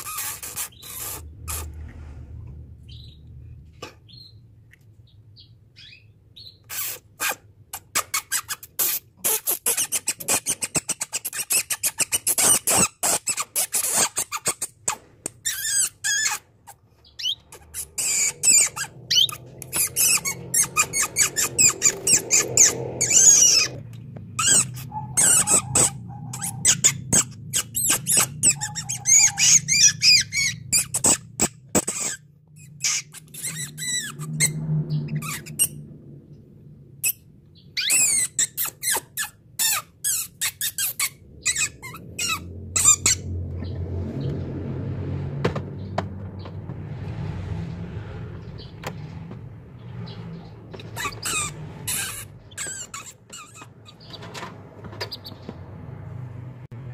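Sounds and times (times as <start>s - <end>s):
canary singing: 0.0s - 1.7s, 2.9s - 3.2s, 4.0s - 7.0s, 15.4s - 23.8s, 24.4s - 35.9s, 37.0s - 43.8s, 50.0s - 54.3s, 55.0s - 55.5s.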